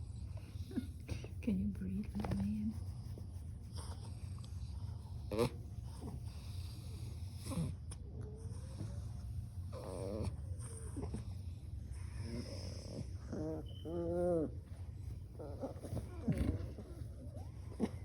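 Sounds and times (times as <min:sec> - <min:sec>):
steady low hum: 0:00.0 - 0:18.0
puppies whimpering and squeaking: 0:13.3 - 0:14.6.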